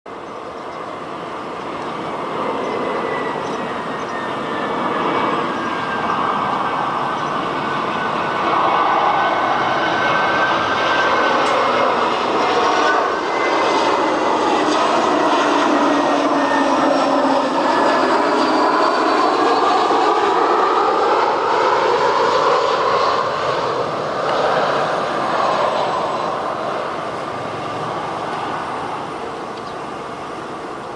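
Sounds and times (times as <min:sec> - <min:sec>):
high engine whine: 0:00.1 - 0:30.9
jet engines roaring: 0:00.1 - 0:30.9.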